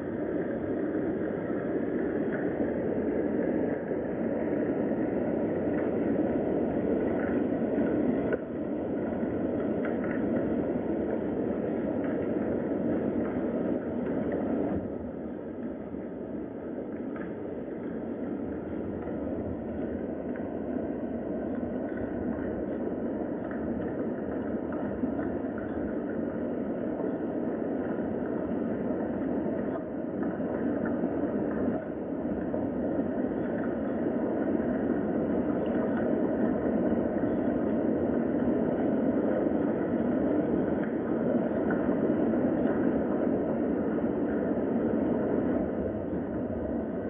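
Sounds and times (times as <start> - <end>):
steady rain hiss: 0.0 - 13.8.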